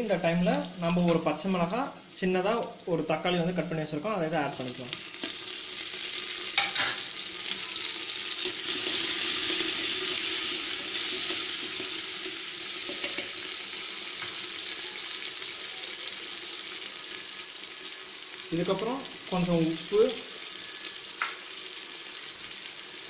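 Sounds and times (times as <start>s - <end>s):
vegetables sizzling in hot oil: 0.0s - 23.0s.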